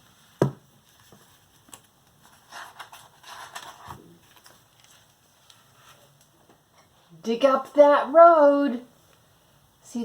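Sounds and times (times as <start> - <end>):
book page turning: 0.2 - 6.3.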